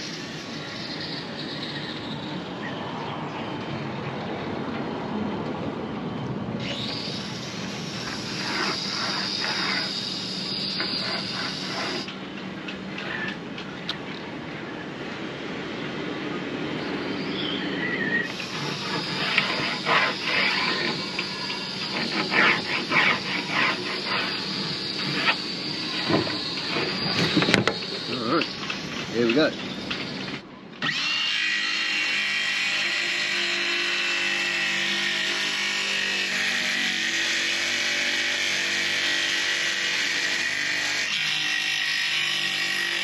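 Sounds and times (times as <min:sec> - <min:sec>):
power tool high whine: 0:00.0 - 0:01.9, 0:06.6 - 0:12.2, 0:18.2 - 0:43.0
hand saw cutting wood: 0:06.7 - 0:12.1, 0:18.3 - 0:28.6, 0:30.8 - 0:43.0.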